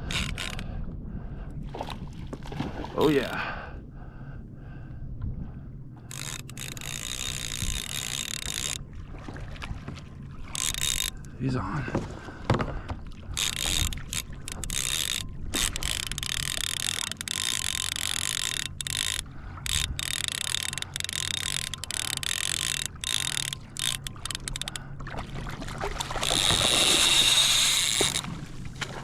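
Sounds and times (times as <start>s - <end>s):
fishing reel drag buzzing: 0.0s - 0.6s, 6.0s - 8.8s, 10.5s - 11.4s, 13.3s - 25.0s, 26.0s - 28.3s.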